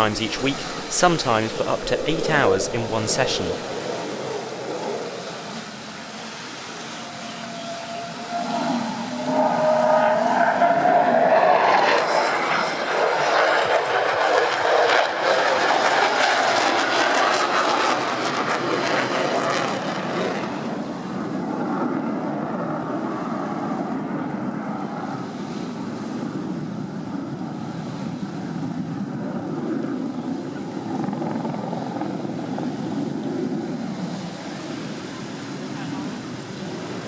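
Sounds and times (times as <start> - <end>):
aircraft flying past: 8.3 - 25.2.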